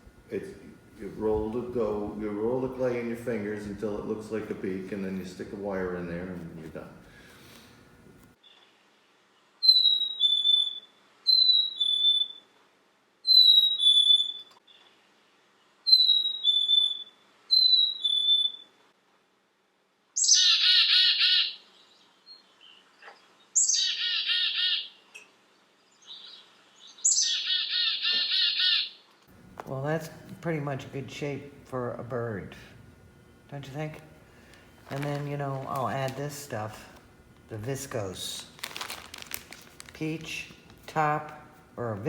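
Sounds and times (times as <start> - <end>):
buzzy chickadee calls: 9.6 - 12.4, 15.9 - 18.6, 26.1 - 28.9.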